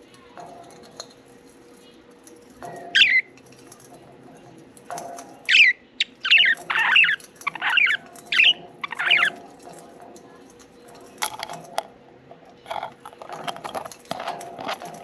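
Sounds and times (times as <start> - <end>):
budgerigars chirping: 3.0 - 3.2, 5.5 - 9.4.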